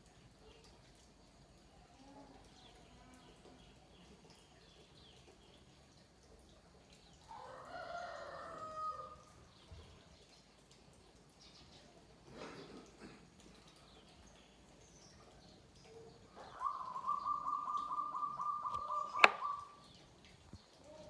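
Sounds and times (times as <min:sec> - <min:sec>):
faint small birds chirping: 0:00.0 - 0:08.5, 0:09.4 - 0:21.0
rooster crowing: 0:07.3 - 0:09.2.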